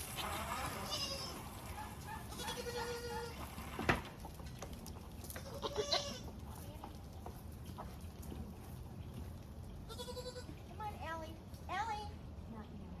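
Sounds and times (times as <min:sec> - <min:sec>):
goats bleating: 0:00.0 - 0:01.6, 0:02.3 - 0:03.4, 0:05.4 - 0:06.3, 0:09.9 - 0:10.6.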